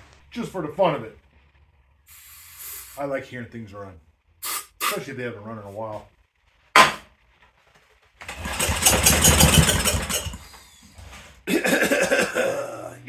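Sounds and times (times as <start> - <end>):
hiss: 2.1 - 3.2, 4.4 - 5.1
pull-start cord: 8.2 - 10.5
generator engine running: 8.2 - 10.6.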